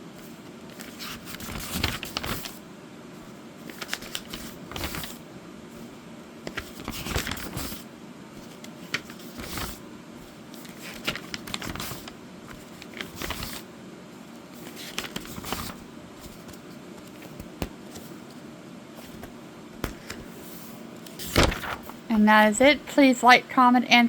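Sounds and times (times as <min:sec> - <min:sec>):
paper pages rustling: 0:00.2 - 0:02.6, 0:03.6 - 0:05.2, 0:05.8 - 0:13.7, 0:14.5 - 0:18.4, 0:19.0 - 0:22.2.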